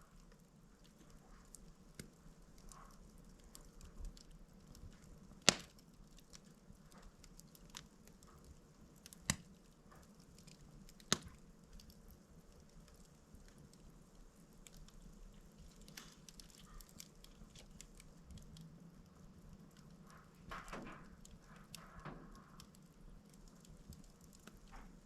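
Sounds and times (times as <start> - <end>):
log crackling in fireplace: 0.0 - 25.0
sharp fire pops: 2.0 - 12.0, 20.0 - 25.0.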